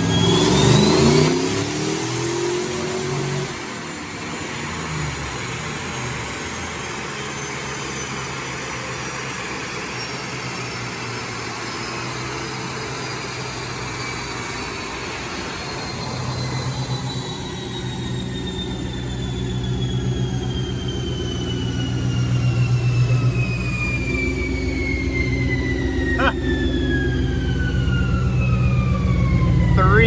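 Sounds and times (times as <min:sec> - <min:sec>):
engine revs dropping: 0:00.0 - 0:03.7
dyno roller rumble: 0:14.0 - 0:30.0.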